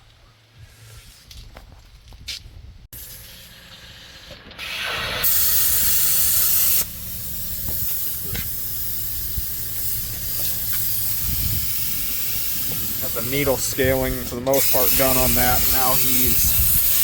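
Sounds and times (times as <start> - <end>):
needle scaler chipping steel: 4.7 - 17.0.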